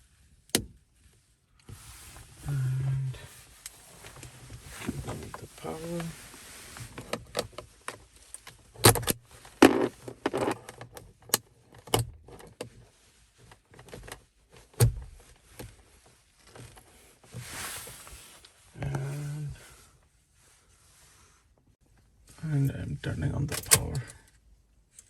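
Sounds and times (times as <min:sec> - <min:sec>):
short rustle: 0:00.8 - 0:10.6, 0:12.8 - 0:21.6.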